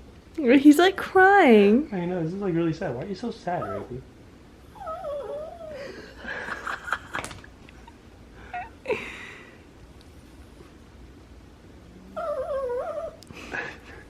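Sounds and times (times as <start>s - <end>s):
dog whining: 3.5s - 4.0s, 4.6s - 6.0s, 11.9s - 13.2s.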